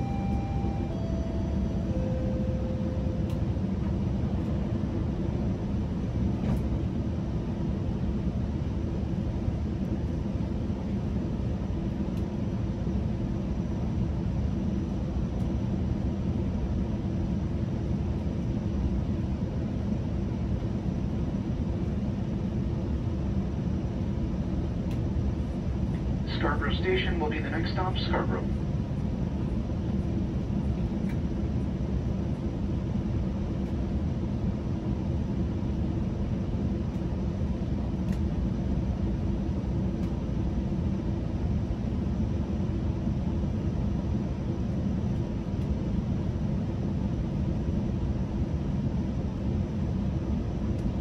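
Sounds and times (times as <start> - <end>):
train interior rumble and hum: 0.0 - 51.0.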